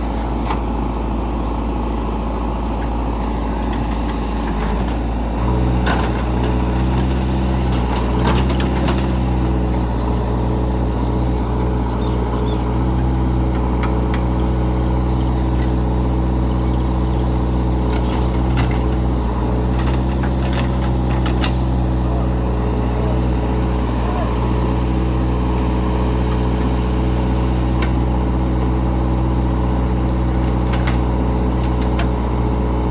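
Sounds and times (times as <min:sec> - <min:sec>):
heavy diesel engine running: 0:00.0 - 0:32.9
machinery clanks and knocks: 0:03.6 - 0:10.1, 0:17.8 - 0:21.8.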